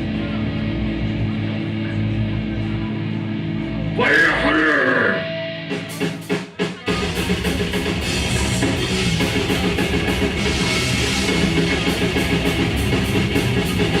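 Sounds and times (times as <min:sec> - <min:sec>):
grindcore band playing: 0:00.0 - 0:14.0.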